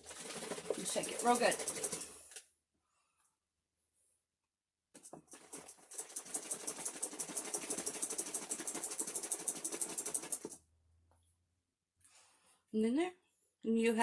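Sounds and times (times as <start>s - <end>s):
liquid sloshing in shaken bottle: 0.0s - 2.4s, 5.0s - 10.6s.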